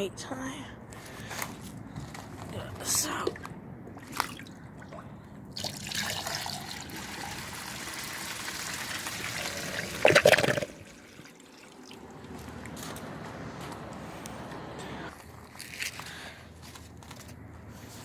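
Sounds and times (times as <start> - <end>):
toy toilet flushing water: 5.6 - 12.0.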